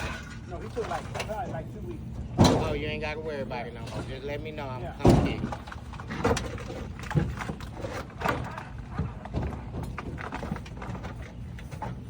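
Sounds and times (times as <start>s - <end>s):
steady low hum: 0.0s - 12.0s
knocks and thumps: 2.3s - 2.9s, 5.0s - 12.0s.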